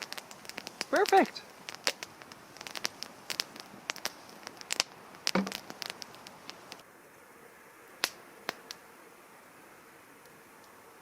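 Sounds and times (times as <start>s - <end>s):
campfire crackling and popping: 0.0s - 6.9s, 7.9s - 8.9s, 10.2s - 11.0s.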